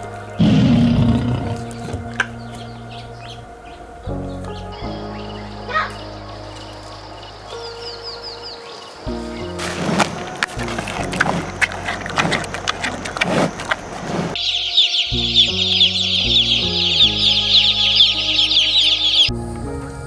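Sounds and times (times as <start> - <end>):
background music: 0.0 - 20.0
chickens clucking: 9.6 - 14.4.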